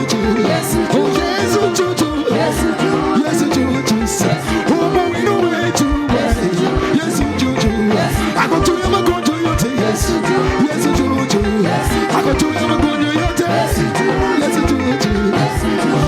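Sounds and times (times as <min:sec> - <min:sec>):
singing: 0:00.0 - 0:16.0
upbeat praise band music: 0:00.0 - 0:16.0
drum beat: 0:05.8 - 0:16.0.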